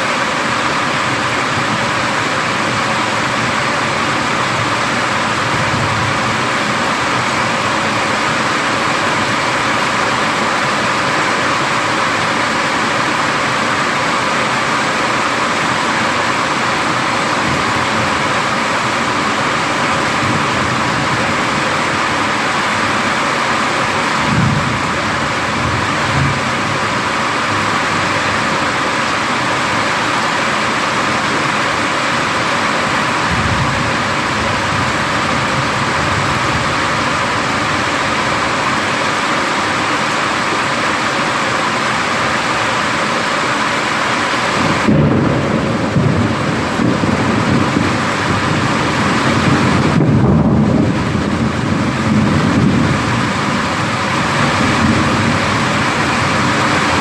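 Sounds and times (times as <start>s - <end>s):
heavy rain hissing: 0.0s - 57.0s
thunder rumbling: 24.2s - 28.4s, 33.0s - 38.6s, 44.6s - 57.0s.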